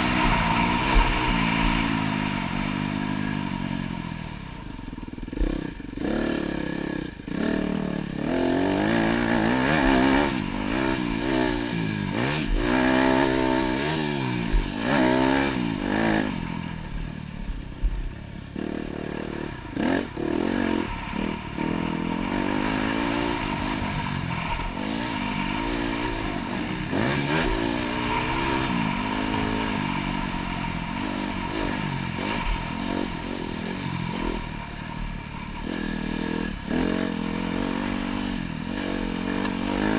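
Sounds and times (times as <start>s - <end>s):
dirt bike engine revving: 0.0s - 4.4s, 5.1s - 17.0s, 18.5s - 39.9s.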